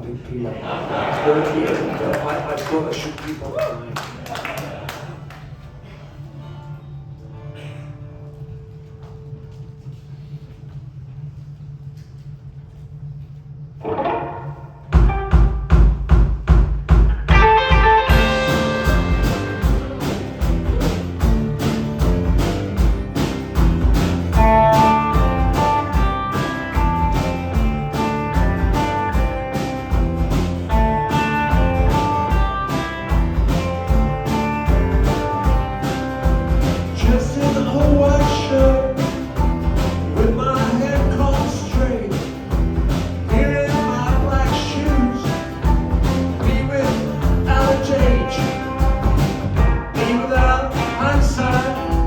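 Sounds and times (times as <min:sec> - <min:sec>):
rock band playing live: 0:13.8 - 0:16.1, 0:17.1 - 0:52.0
steady drum beat: 0:14.8 - 0:52.0.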